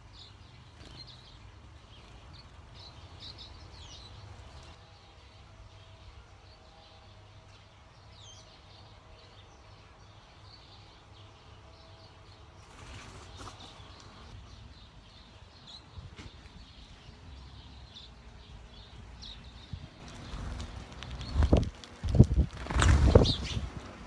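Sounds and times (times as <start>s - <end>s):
small birds chirping: 0.0s - 24.0s
bird wingbeats: 12.6s - 13.9s, 20.0s - 24.0s.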